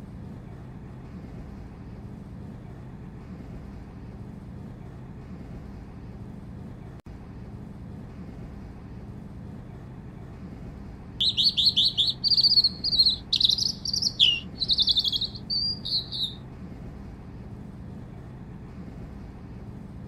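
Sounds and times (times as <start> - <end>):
steady low rumble: 0.0 - 20.0
songbird trilling and chirping: 11.2 - 16.4.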